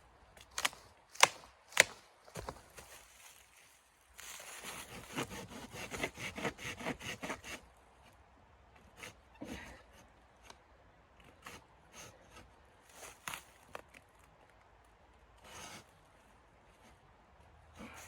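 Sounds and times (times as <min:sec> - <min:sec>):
rasping strokes: 0:04.6 - 0:07.6.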